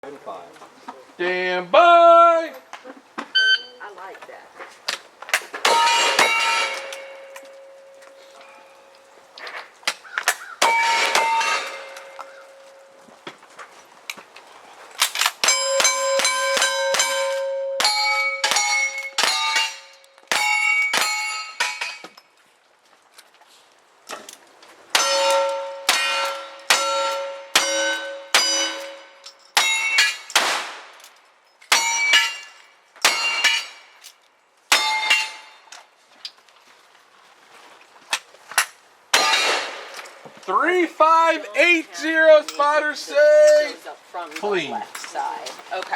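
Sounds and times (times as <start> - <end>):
steel plate ringing clang: 5.6 - 9.0, 10.6 - 13.0, 15.4 - 22.3, 24.9 - 30.5, 31.7 - 34.0, 34.7 - 35.7, 39.1 - 40.1
gunshots: 30.0 - 30.9, 39.2 - 40.0.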